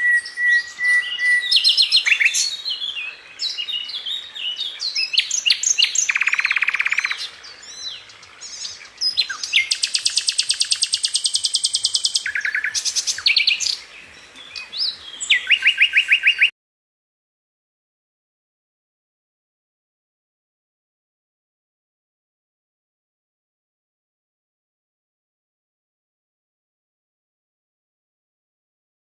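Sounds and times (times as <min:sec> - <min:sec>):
wild birds chirping and whistling: 0:00.0 - 0:16.5
fast rattling bird trills: 0:05.3 - 0:07.3, 0:08.6 - 0:13.8.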